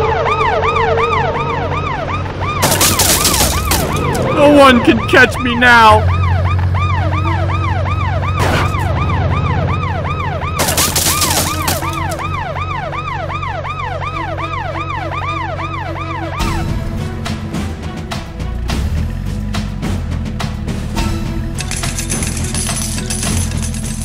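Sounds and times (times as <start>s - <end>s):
police siren yelping: 0.0s - 16.6s.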